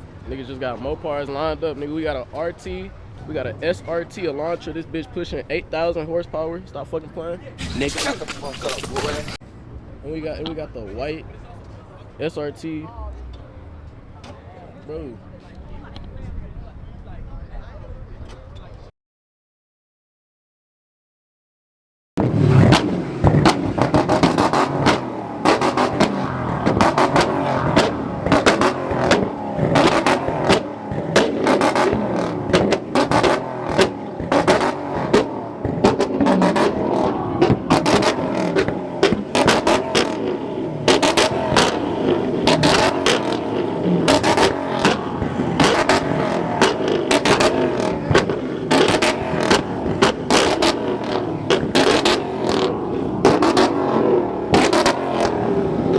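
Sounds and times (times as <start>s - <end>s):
exhaust pops and crackles: 7.6s - 9.4s, 22.2s - 55.9s
car engine revving: 22.2s - 55.9s.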